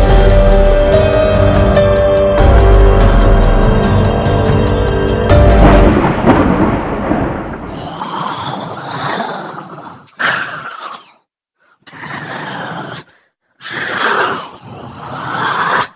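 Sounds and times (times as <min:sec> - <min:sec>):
deep rolling boom: 0:00.0 - 0:08.2.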